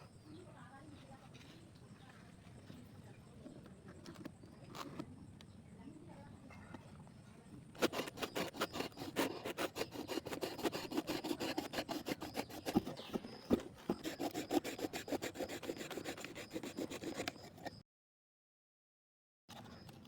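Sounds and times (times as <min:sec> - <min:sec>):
fast scraping strokes: 0:07.8 - 0:17.8.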